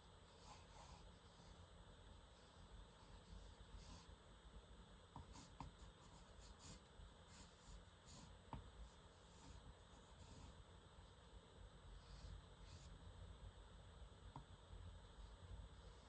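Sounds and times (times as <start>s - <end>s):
pen scratching on paper: 0.2s - 1.6s, 5.2s - 10.6s.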